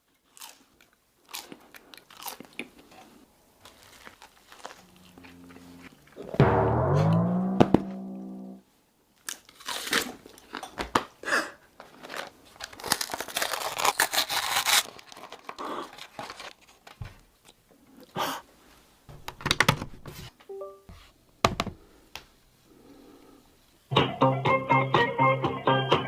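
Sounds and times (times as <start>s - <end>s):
packaging crinkling and tearing: 0.2s - 5.1s, 9.2s - 10.7s, 11.8s - 17.0s
rising musical sound effect: 4.8s - 8.6s.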